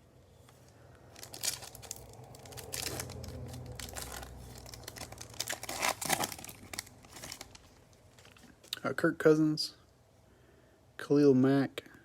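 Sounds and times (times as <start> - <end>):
foil wrapper tearing and crinkling: 1.2 - 8.7.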